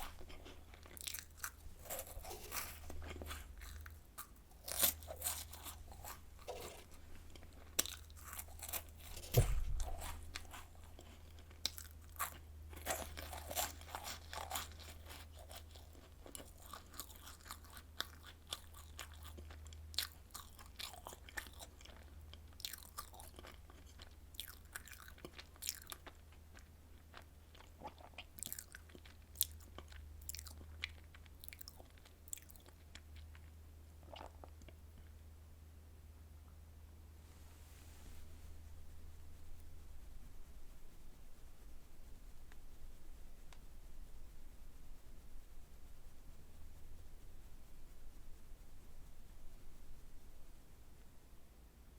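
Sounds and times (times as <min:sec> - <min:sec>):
crunching and chewing cookies: 0:00.0 - 0:35.3
low thump: 0:09.2 - 0:10.1
steady low hum: 0:33.0 - 0:51.9.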